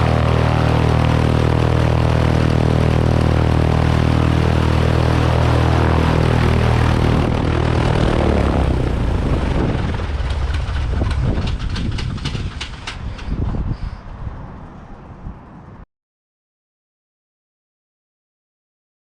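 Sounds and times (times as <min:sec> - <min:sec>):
propeller engine running and winding down: 0:00.0 - 0:13.8.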